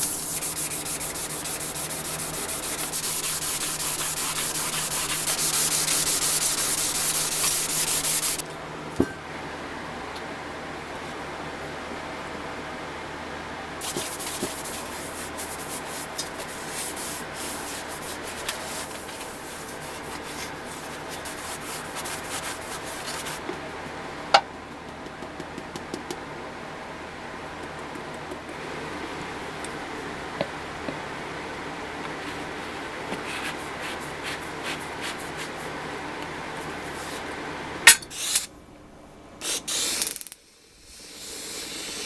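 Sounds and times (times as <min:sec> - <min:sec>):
hand sanding scratchy rubbing: 0:00.0 - 0:08.4, 0:13.8 - 0:23.4, 0:33.2 - 0:35.6.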